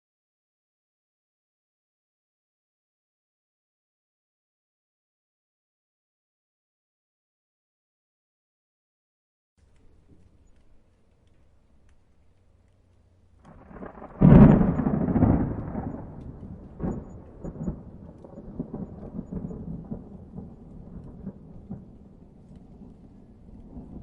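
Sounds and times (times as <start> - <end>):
thunder rumbling and cracking: 13.4 - 24.0.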